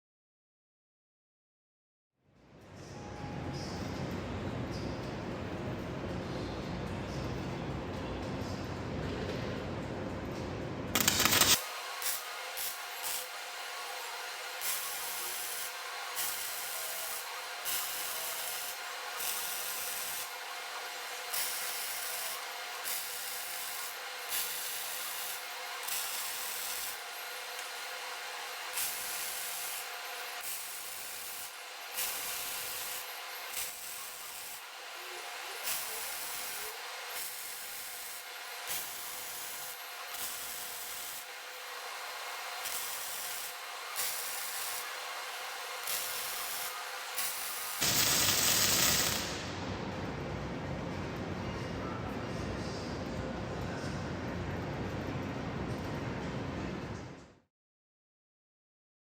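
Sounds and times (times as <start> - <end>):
welding arc hissing crackle: 11.0 - 20.3, 21.3 - 41.3, 42.3 - 49.6.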